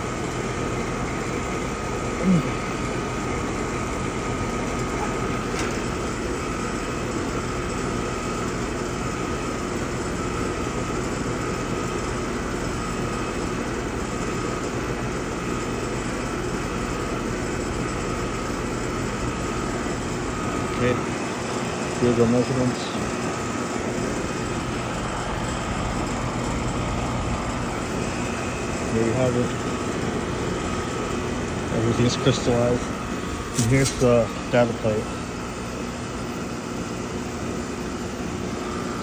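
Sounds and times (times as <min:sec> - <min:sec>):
heat pump humming: 0:00.0 - 0:39.0.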